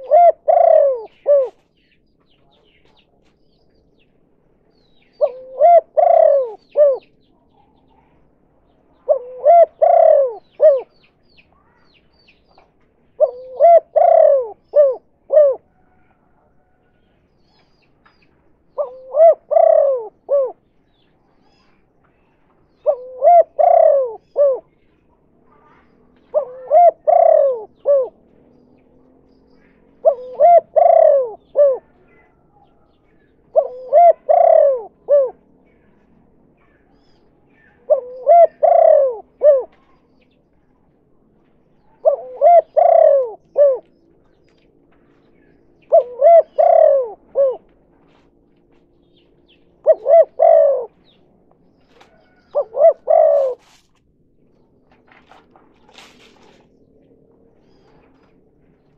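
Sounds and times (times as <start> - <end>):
dove cooing: 0.0 - 1.8, 5.0 - 8.3, 8.9 - 16.8, 18.6 - 40.5, 41.3 - 58.9.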